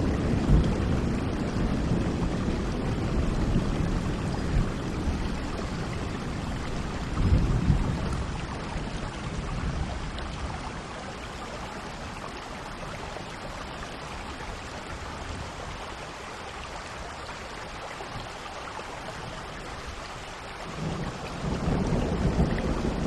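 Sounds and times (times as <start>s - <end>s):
low thunder rumble: 0.0s - 10.9s, 20.7s - 23.0s
steady rain falling: 0.0s - 23.0s.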